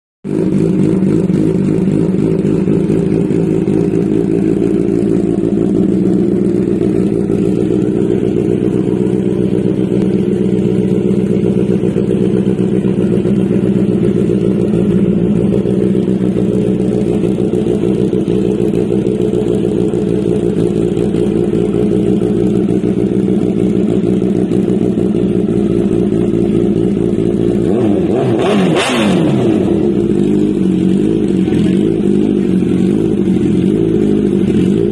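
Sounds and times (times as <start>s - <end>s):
motorcycle engine idling: 0.3s - 34.9s.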